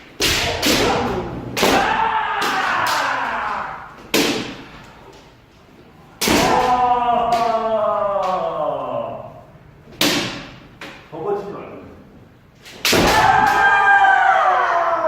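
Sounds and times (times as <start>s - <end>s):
bamboo swords striking armour: 0.2s - 3.1s, 4.1s - 4.7s, 6.2s - 7.5s, 10.0s - 10.6s, 12.8s - 13.6s.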